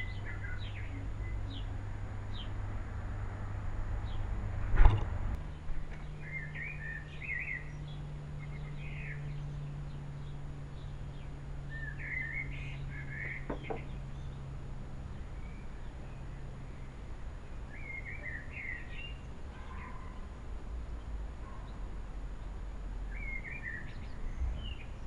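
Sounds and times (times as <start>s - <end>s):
low steady hum: 0.0s - 25.0s
thump: 4.7s - 5.1s
small bird chirping: 5.5s - 14.5s.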